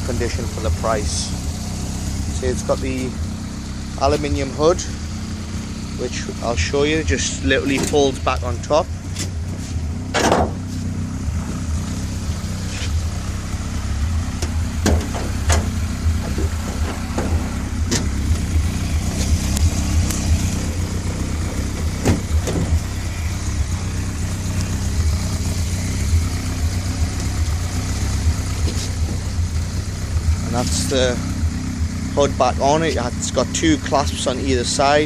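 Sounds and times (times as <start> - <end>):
car engine idling: 0.0 - 35.0
clicks and knocks of metal hood: 10.1 - 10.7, 14.4 - 18.1, 22.0 - 22.8.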